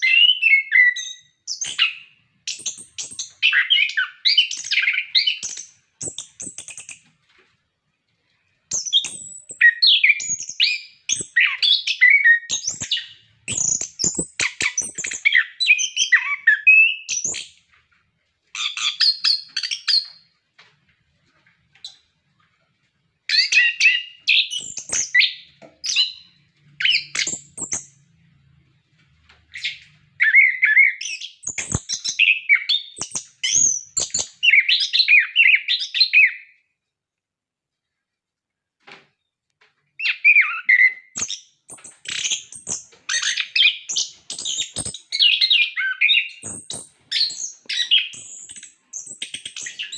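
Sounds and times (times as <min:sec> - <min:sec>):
sharp clicks: 0:31.5 - 0:32.1.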